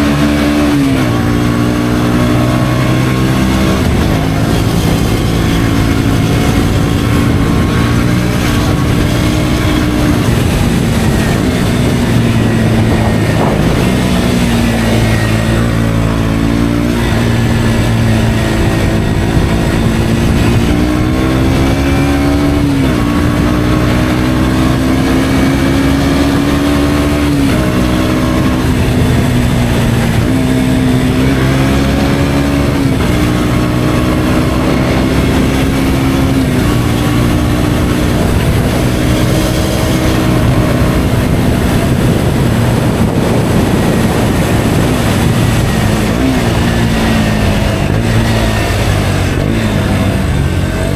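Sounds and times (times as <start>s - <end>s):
motorcycle engine changing gear: 0.0s - 50.9s.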